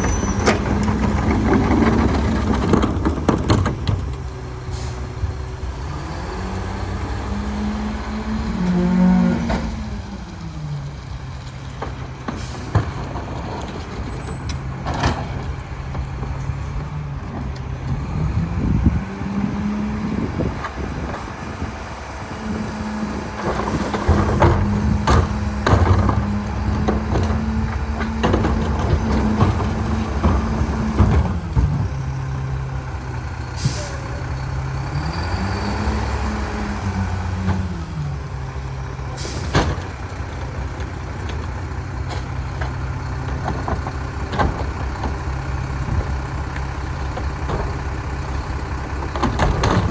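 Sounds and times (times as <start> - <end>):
metal clanks and knocks: 0.0 - 4.3, 11.4 - 18.1, 23.4 - 32.0, 39.4 - 49.9
garbage truck diesel engine: 0.0 - 49.9
air brake hisses: 33.6 - 34.2, 39.2 - 39.6.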